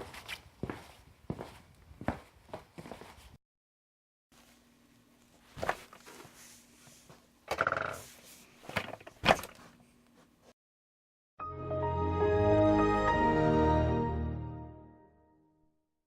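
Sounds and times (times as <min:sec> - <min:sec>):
music: 0:11.4 - 0:15.8.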